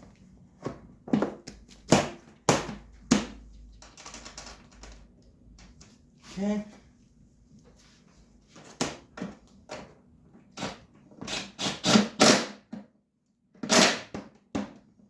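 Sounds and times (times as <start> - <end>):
knocks and clatter of parts: 0.7 - 6.0.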